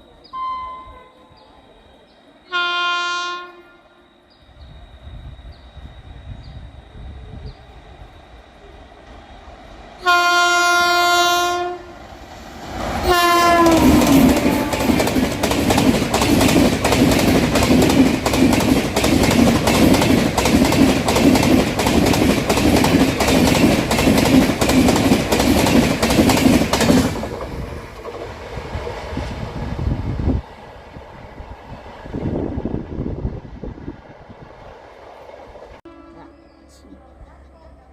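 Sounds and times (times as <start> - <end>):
train horn blasts: 0.3 - 1.4, 2.4 - 4.1, 10.0 - 12.0, 13.0 - 15.2, 35.8 - 36.8
train wheels clattering over rail joints: 13.5 - 28.9.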